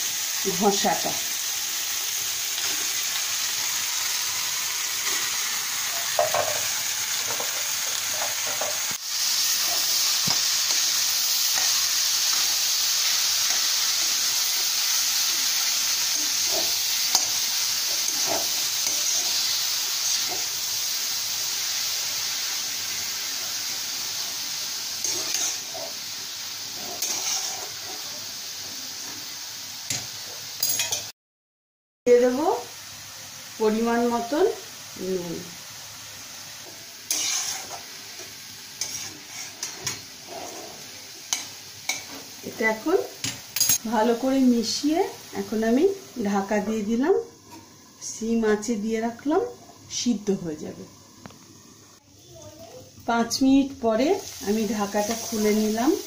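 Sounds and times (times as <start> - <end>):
food sizzling in hot oil: 0.0 - 31.2, 32.1 - 56.0
metal spatula scraping a pan: 7.3 - 10.8, 15.8 - 20.5, 25.0 - 28.2, 37.1 - 42.3.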